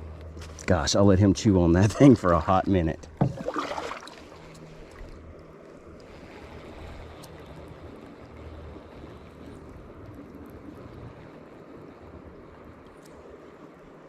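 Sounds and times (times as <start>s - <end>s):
faint ticks: 0.1s - 0.7s, 4.5s - 13.8s
creek water rushing: 2.0s - 8.7s.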